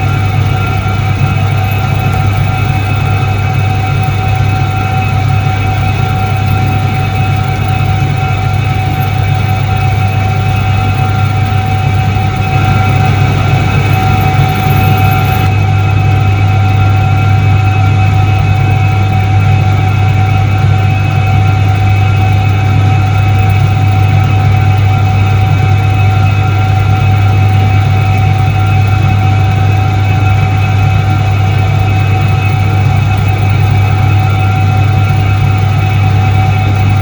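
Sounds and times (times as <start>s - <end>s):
washing machine motor humming: 0.0s - 16.3s.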